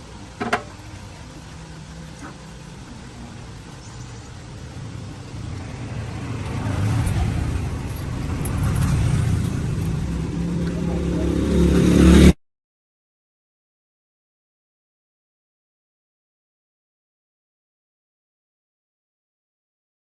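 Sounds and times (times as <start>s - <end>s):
engine rumbling: 0.0s - 12.4s.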